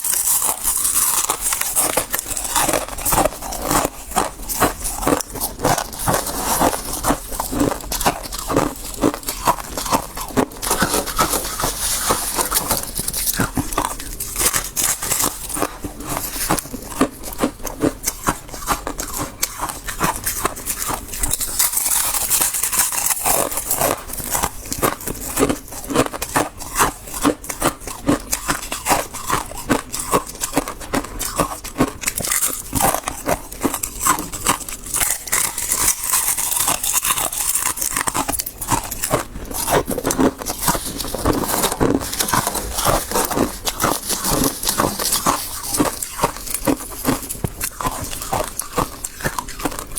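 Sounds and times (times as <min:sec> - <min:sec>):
crunching of frost being chewed: 0:00.0 - 0:49.9.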